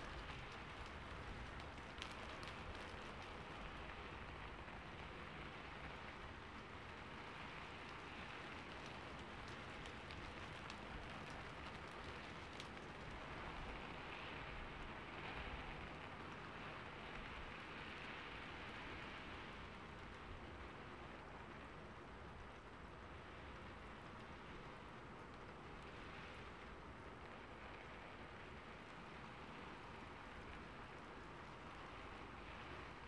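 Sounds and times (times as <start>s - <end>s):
faint clicks: 0.0s - 13.7s
rain pattering: 0.0s - 33.0s.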